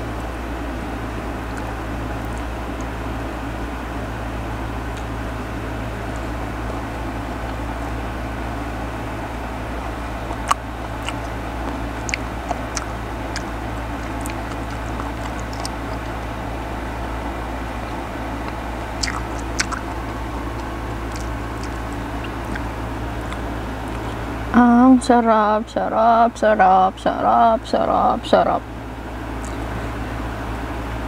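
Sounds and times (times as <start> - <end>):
steady background hum: 0.0 - 31.0
chewing crisp fruit: 1.4 - 3.0, 9.7 - 24.3, 29.3 - 30.0.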